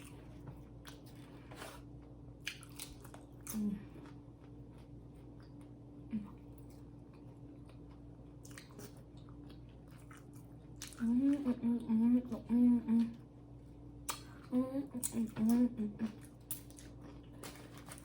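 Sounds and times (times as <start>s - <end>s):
person chewing food: 0.0s - 11.2s, 16.2s - 18.0s
faint steady hum: 0.0s - 18.0s.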